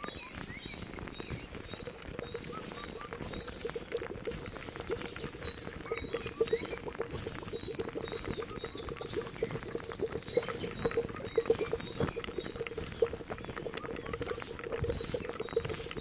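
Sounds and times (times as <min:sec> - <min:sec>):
liquid boiling and bubbling: 0:00.0 - 0:16.0.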